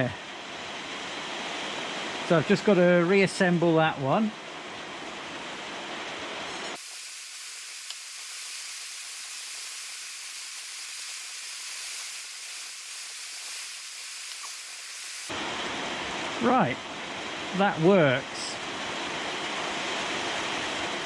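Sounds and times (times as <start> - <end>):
steady hiss: 6.4 - 15.4.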